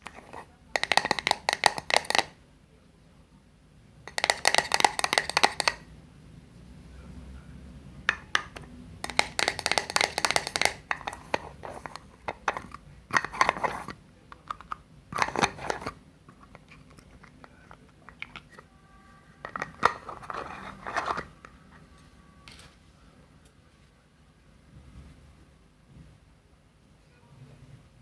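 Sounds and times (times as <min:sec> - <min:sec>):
crinkling and crackling: 0:19.4 - 0:22.8.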